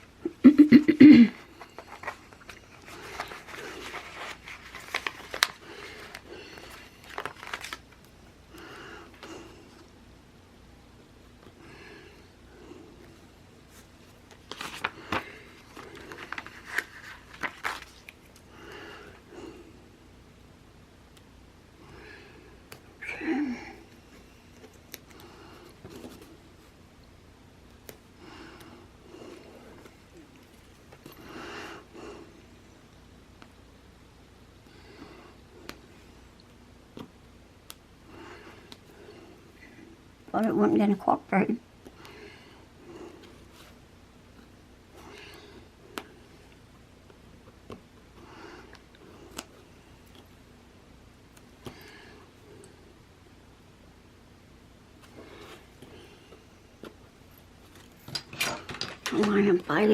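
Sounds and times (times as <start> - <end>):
paper crinkling and rustling: 1.6 - 8.1, 13.7 - 18.4.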